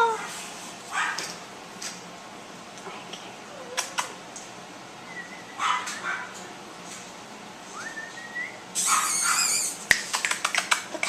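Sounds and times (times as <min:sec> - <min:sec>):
puppy whimpering and yipping: 0:08.8 - 0:09.8.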